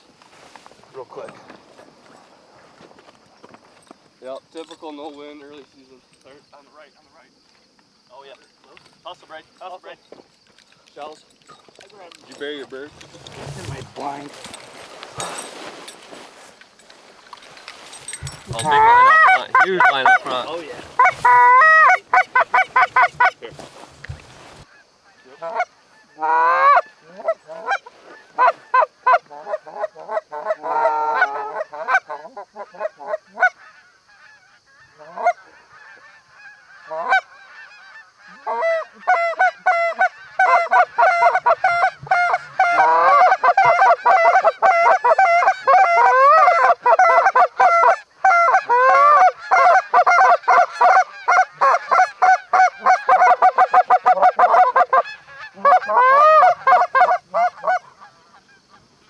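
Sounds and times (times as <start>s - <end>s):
geese honking: 12.0s - 59.0s.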